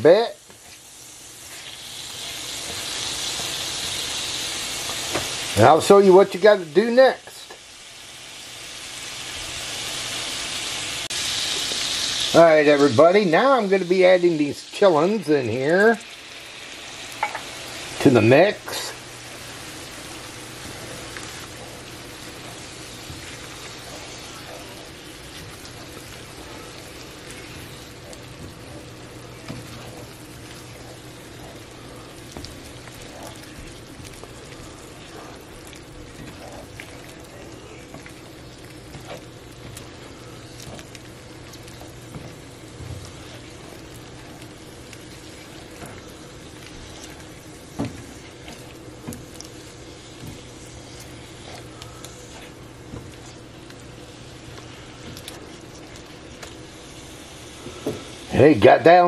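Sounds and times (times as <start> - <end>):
food sizzling in a skillet: 0.0 - 59.0
spatula scraping a pan: 17.2 - 41.0.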